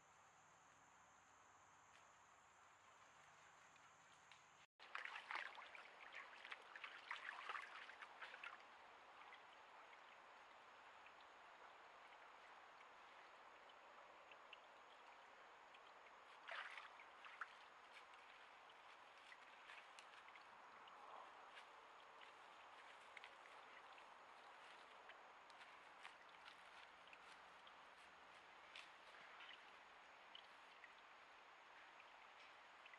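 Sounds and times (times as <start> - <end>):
flowing creek: 1.9 - 32.9.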